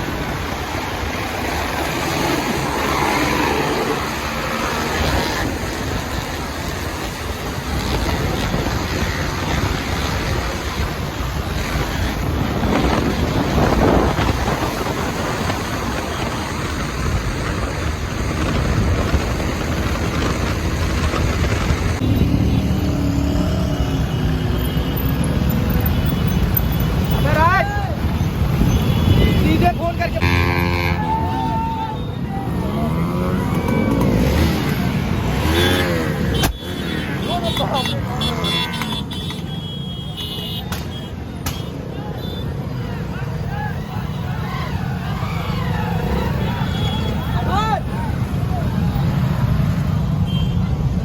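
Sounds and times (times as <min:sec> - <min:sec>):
motorcycle and traffic noise: 0:00.0 - 0:51.0
wind rushing over microphone: 0:05.1 - 0:23.9.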